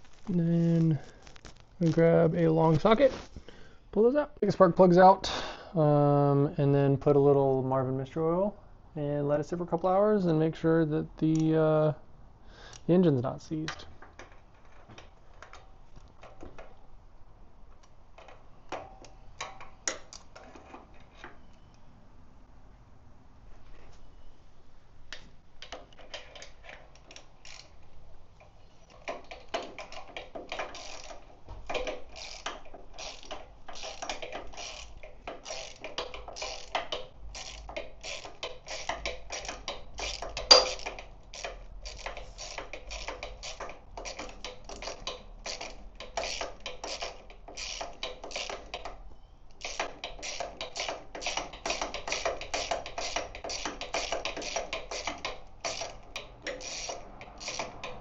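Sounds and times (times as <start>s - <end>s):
ratchet wrench clicking: 25.6s - 27.8s, 28.9s - 49.0s, 49.6s - 58.0s.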